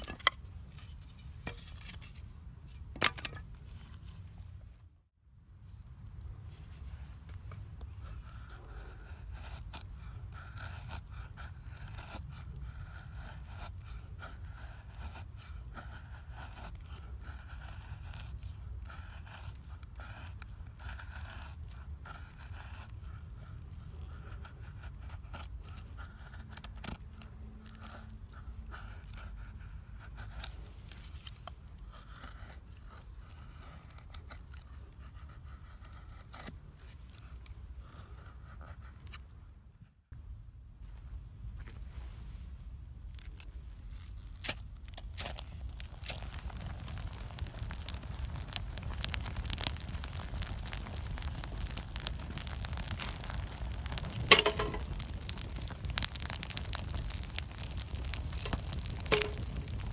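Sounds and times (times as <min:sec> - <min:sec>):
wood bonfire crackling: 0:43.0 - 0:59.9.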